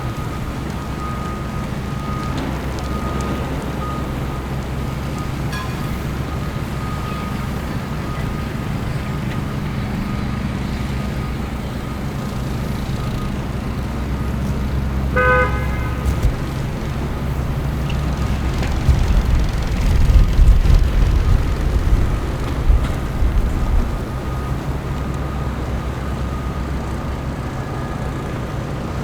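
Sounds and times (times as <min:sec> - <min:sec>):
traffic engine rumble: 0:00.0 - 0:29.0
car horn honking: 0:15.1 - 0:16.6.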